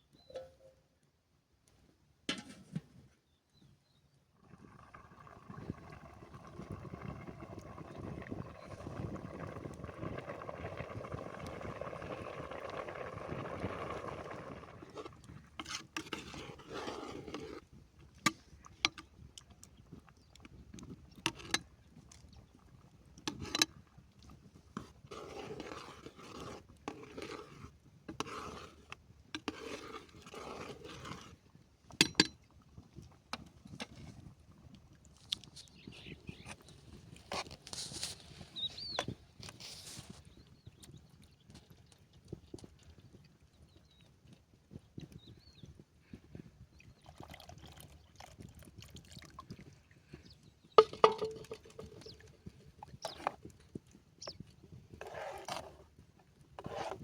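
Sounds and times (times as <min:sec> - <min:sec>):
scraping: 0:50.8 - 0:52.3.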